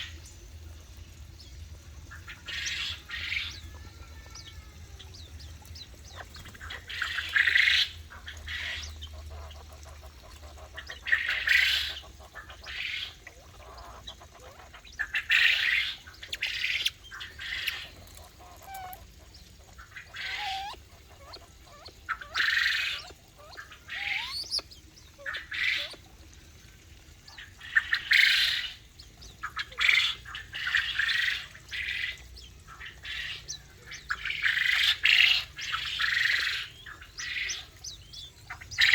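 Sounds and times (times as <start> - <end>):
birds squawking harshly: 6.0 - 26.0.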